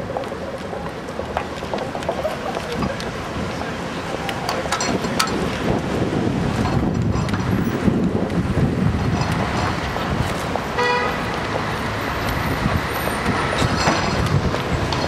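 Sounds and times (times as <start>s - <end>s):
road traffic rumble: 0.0s - 15.0s
short car horn toot: 10.8s - 11.1s.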